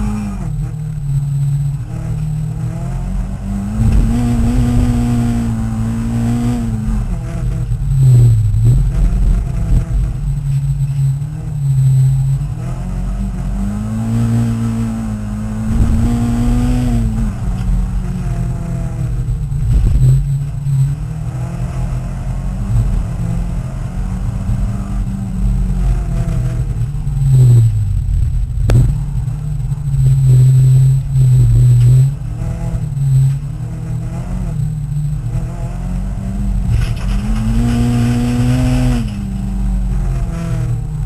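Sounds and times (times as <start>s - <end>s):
race car engine revving: 0.0s - 41.0s
sharp knock: 28.6s - 29.0s.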